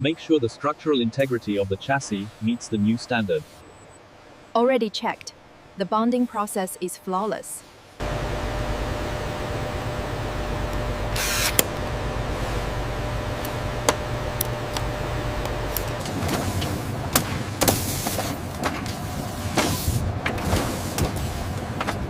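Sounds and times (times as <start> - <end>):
factory machinery humming: 8.0 - 22.0
sharp clicks and knocks: 13.4 - 18.9.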